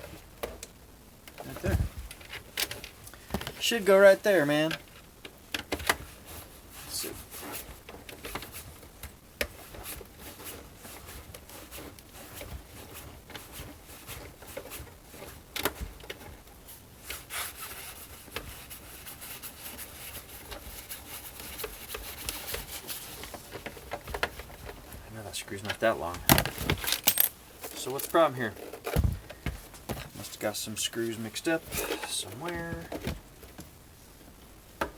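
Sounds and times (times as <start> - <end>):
screwdriver scratchy rubbing: 5.7 - 29.0, 29.7 - 33.0.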